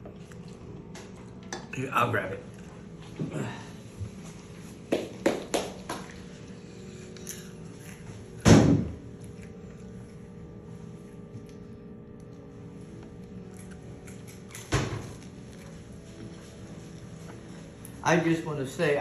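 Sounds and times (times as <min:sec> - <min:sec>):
loud thud of door shutting: 0:08.4 - 0:09.0.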